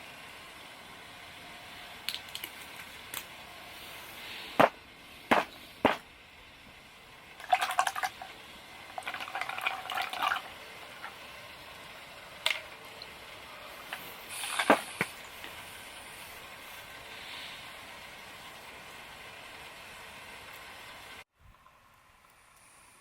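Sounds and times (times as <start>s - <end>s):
camp gear clattering: 4.6s - 6.0s, 13.8s - 15.2s
sharp knocks: 4.6s - 6.0s.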